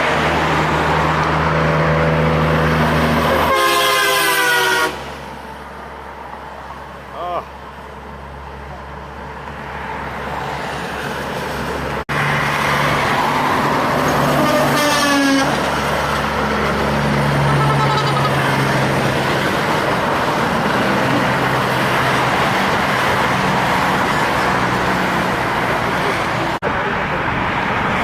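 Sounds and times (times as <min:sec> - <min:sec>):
heavy trucks passing: 0:00.0 - 0:28.0
truck horn toot: 0:03.3 - 0:05.1, 0:14.3 - 0:15.6, 0:17.5 - 0:18.5.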